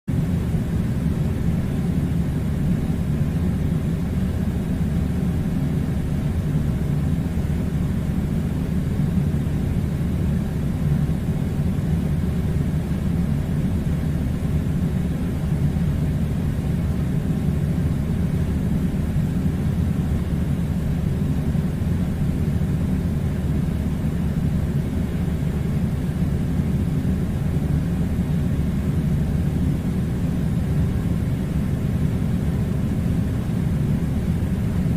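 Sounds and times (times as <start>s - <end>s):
low mechanical rumble: 0.1s - 34.9s.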